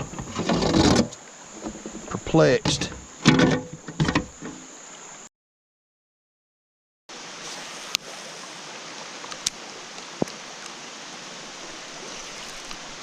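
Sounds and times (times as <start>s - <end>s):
rain falling on a lake: 7.1s - 13.0s.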